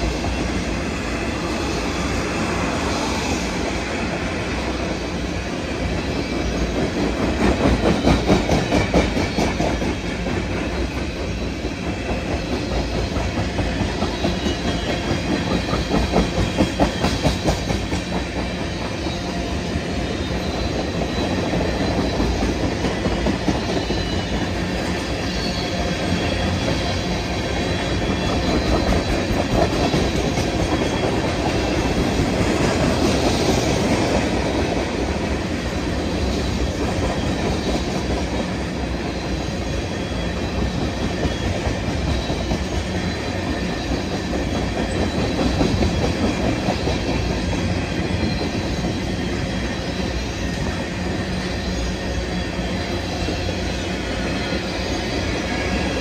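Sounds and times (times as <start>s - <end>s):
steel wheels rumbling on rails: 0.0s - 56.0s
high wheel squeal: 12.1s - 18.0s, 18.6s - 32.5s, 36.1s - 56.0s.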